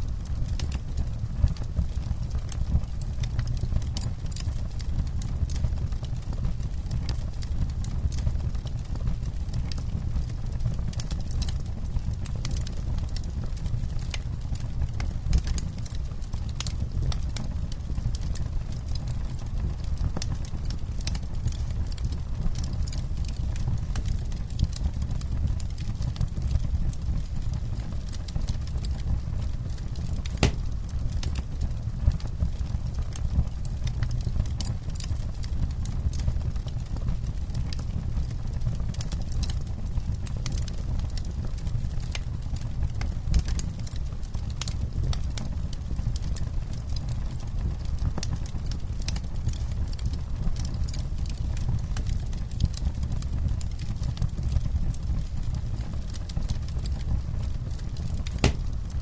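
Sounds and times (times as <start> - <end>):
low rumble of flames: 0.0 - 59.0
campfire crackling: 0.1 - 59.0.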